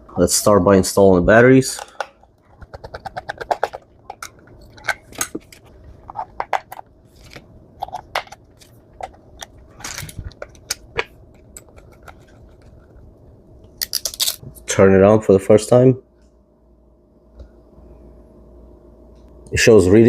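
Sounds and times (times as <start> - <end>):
plastic and metal clicks and scrapes: 1.8 - 12.8.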